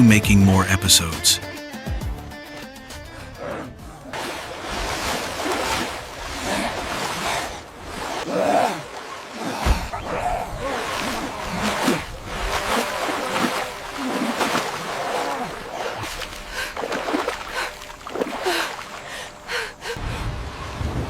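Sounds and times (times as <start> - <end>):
people gasping and crying out: 2.8 - 4.4, 5.0 - 20.1
splashing water: 4.0 - 21.0.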